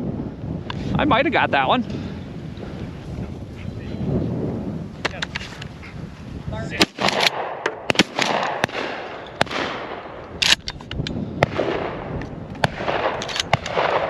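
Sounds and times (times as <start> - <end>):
shotguns firing: 6.7 - 10.8, 11.4 - 14.0.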